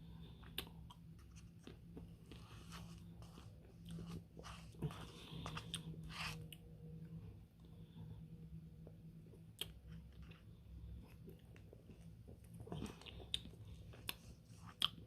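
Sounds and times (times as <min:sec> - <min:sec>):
chewing and crunching: 0:09.2 - 0:15.0.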